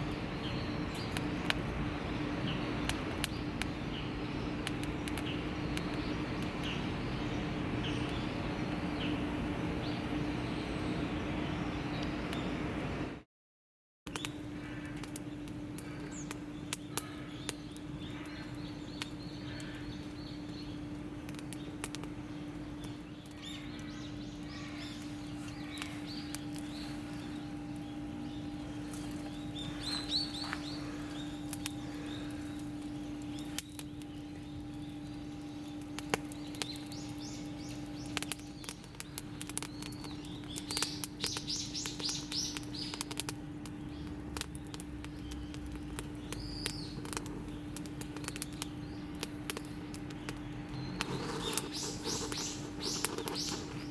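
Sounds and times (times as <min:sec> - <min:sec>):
campfire crackling: 0:00.0 - 0:12.5, 0:14.1 - 0:53.9
birds chirping: 0:00.0 - 0:13.0, 0:14.1 - 0:53.9
steady hum: 0:14.5 - 0:53.9.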